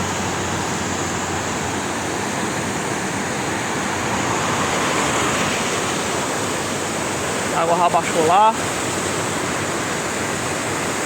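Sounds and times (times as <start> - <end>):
rushing rain water: 0.0 - 11.0.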